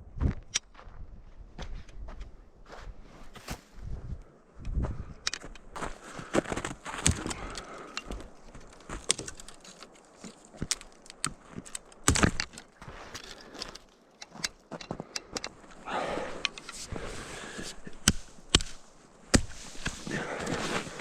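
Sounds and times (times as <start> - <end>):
camping gear clinking and knocking: 5.2 - 21.0
rustling: 5.8 - 14.8, 16.5 - 21.0.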